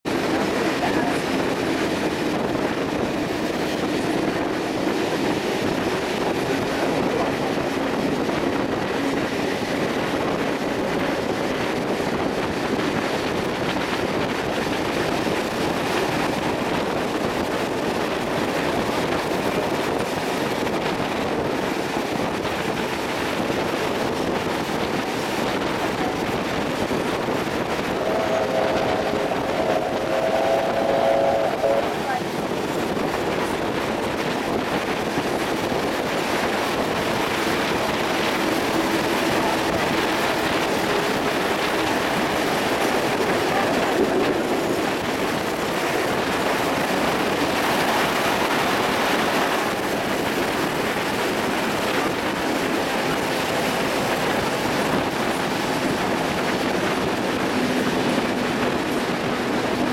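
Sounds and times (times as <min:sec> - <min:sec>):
train carriage rolling over rails: 0:00.1 - 0:59.9
wind rushing past: 0:07.4 - 0:55.2.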